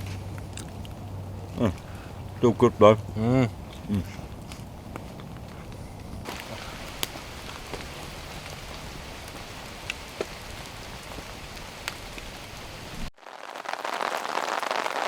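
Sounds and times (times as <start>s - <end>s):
steady rain falling: 6.2s - 15.0s.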